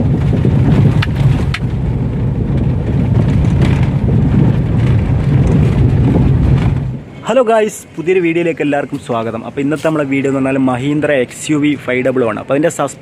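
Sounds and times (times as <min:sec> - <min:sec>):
suspension knocks: 0:00.0 - 0:07.1
car road rumble: 0:00.0 - 0:13.0.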